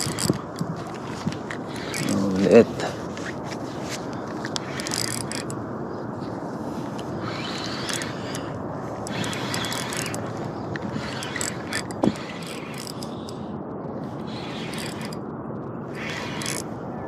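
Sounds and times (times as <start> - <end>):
fishing reel ratcheting clicks: 0.0 - 0.4, 1.5 - 2.2, 4.5 - 5.6, 7.2 - 13.4, 14.3 - 15.2, 15.9 - 16.7
steady background noise: 0.0 - 17.0.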